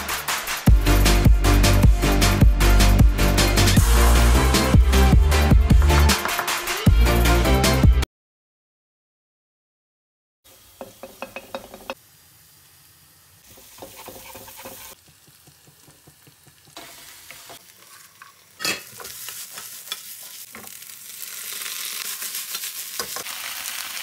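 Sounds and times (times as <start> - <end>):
food sizzling in oil: 10.5 - 24.0
wooden spatula scraping a wok: 13.5 - 15.8, 16.7 - 20.8.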